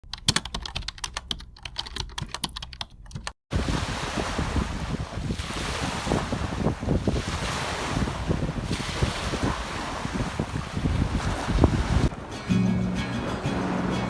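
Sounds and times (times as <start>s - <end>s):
sea waves washing on beach: 3.5s - 14.0s
wind buffeting microphone: 3.5s - 14.0s.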